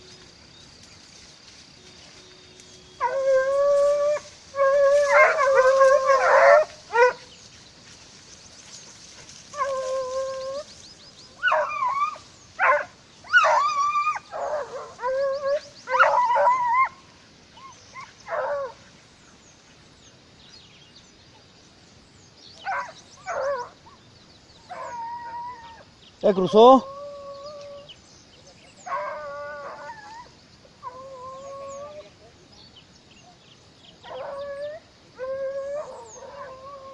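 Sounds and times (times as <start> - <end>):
dogs howling: 2.9 - 7.3, 9.5 - 10.7, 11.4 - 18.8, 22.6 - 23.8, 24.6 - 27.9, 28.8 - 32.3, 34.0 - 36.9
dogs barking and yelping: 3.0 - 7.3, 9.0 - 10.8, 11.4 - 18.8, 22.6 - 24.0, 24.6 - 25.8, 28.8 - 32.1, 34.0 - 36.9.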